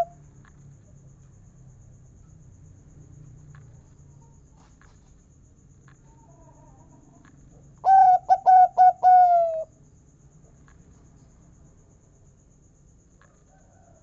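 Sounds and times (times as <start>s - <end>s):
dove cooing: 7.8s - 9.7s.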